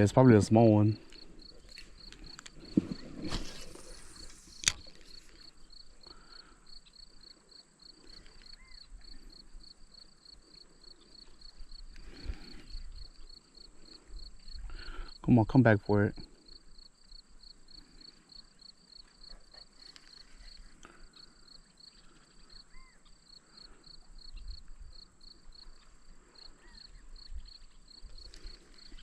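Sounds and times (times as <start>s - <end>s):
insect chirping: 0.0s - 29.0s.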